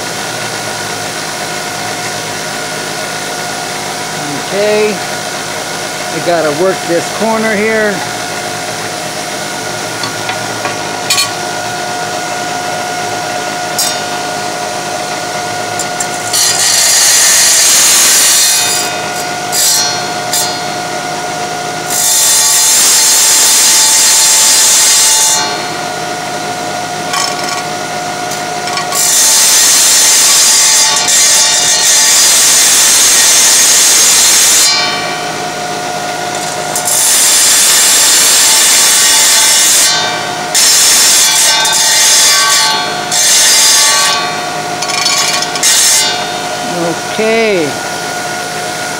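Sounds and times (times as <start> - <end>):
tile saw grinding ceramic tile: 15.8 - 20.6, 28.3 - 34.6, 36.3 - 47.0.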